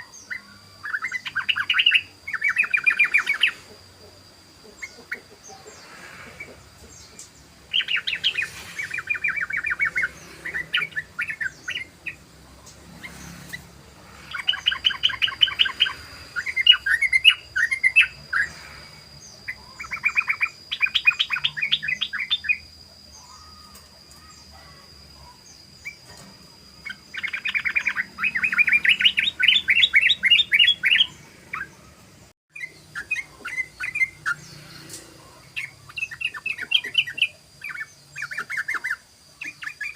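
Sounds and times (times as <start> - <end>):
bulbul singing fast chattering notes: 0.3 - 3.8, 6.4 - 22.7, 35.3 - 39.9.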